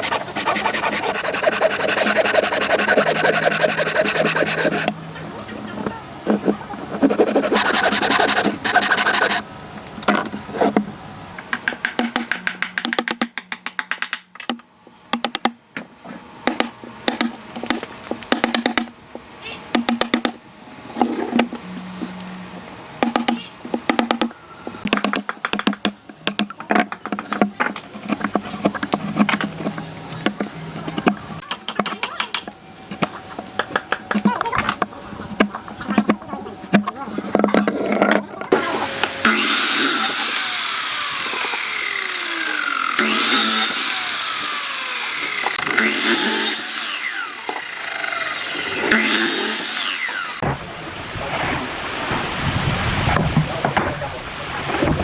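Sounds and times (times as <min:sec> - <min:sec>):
power tool cutting wood: 0:00.0 - 0:05.0, 0:07.0 - 0:09.4, 0:38.5 - 0:50.4.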